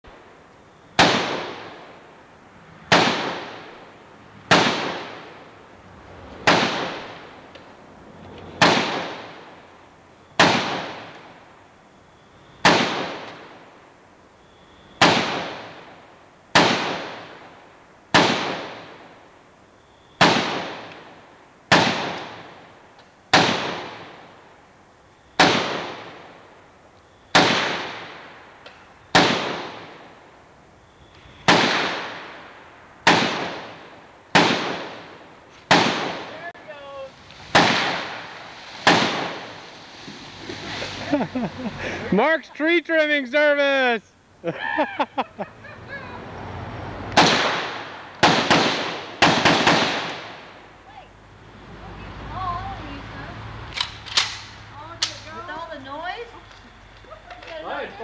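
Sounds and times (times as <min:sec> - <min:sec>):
rifle shots echoing: 0:01.0 - 0:01.9, 0:02.9 - 0:03.8, 0:04.5 - 0:05.4, 0:06.4 - 0:07.3, 0:08.6 - 0:09.5, 0:10.4 - 0:11.2, 0:12.6 - 0:13.6, 0:15.0 - 0:15.9, 0:16.5 - 0:17.4, 0:18.1 - 0:19.1, 0:20.2 - 0:21.1, 0:21.7 - 0:22.6, 0:23.3 - 0:24.3, 0:25.4 - 0:26.4, 0:27.3 - 0:28.3, 0:29.1 - 0:30.0, 0:31.4 - 0:36.4, 0:37.5 - 0:39.7, 0:47.2 - 0:50.6.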